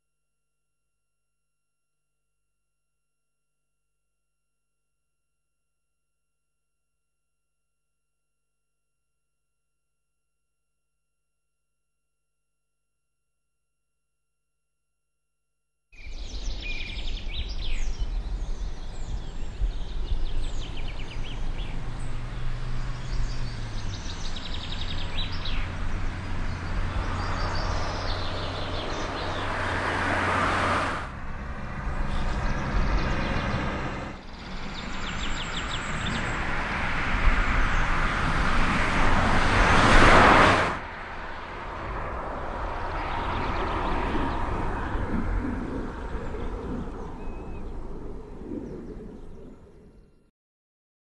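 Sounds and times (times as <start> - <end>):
birds chirping: 16.0 - 30.2, 31.6 - 36.4, 43.2 - 50.2.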